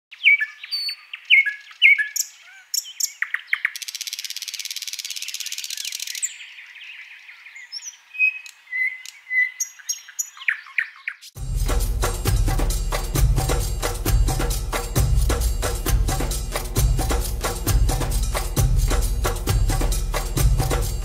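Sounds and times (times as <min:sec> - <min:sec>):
downward-sweeping bird calls: 0:00.1 - 0:11.4
whistled bird notes: 0:00.1 - 0:11.4
fast buzzing bird trill: 0:00.3 - 0:06.4.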